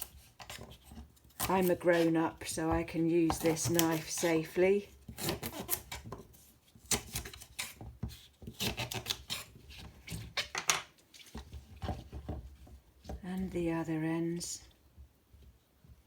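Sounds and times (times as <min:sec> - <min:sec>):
knife slicing rhubarb: 0:00.0 - 0:06.1, 0:06.8 - 0:10.3.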